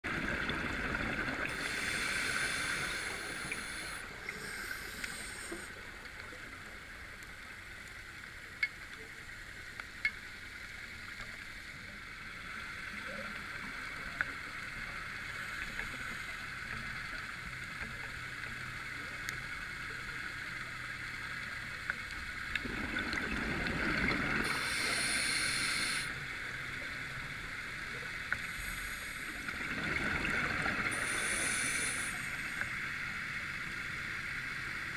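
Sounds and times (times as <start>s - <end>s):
exhaled bubbles rushing: 0.0s - 1.6s, 22.6s - 24.6s, 29.5s - 31.0s
underwater breathing hiss: 1.3s - 5.9s, 24.0s - 26.4s, 28.4s - 29.8s, 30.4s - 32.8s.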